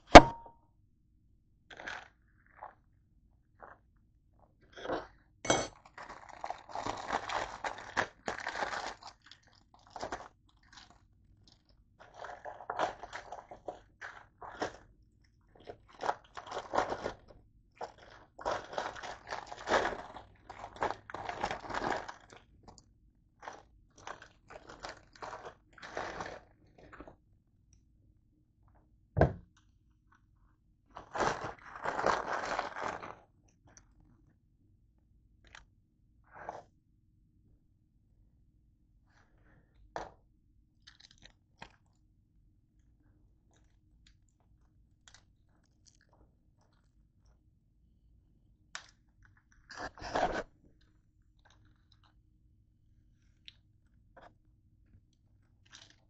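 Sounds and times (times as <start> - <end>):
person chewing crunchy food: 5.8 - 27.2, 31.0 - 34.1, 40.7 - 42.0, 43.5 - 47.3, 48.7 - 52.3, 55.1 - 56.0.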